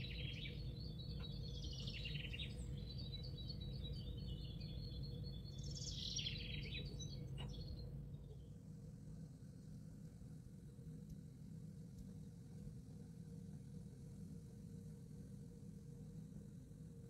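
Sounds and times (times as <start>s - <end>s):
small birds chirping: 0.0s - 8.6s
low steady hum: 0.0s - 17.0s.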